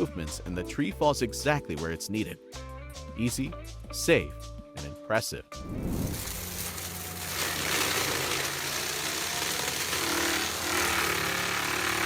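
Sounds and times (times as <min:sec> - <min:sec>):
forestry machinery running: 0:06.1 - 0:12.0.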